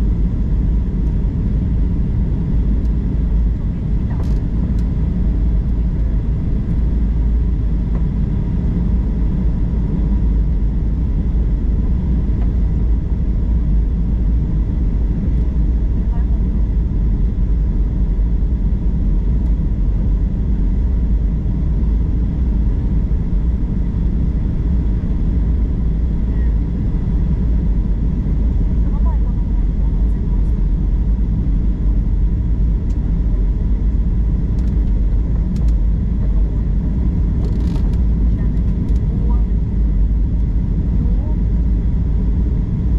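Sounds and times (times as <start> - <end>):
airliner engines rumbling: 0.0 - 42.9
faint light ticks: 34.6 - 35.8.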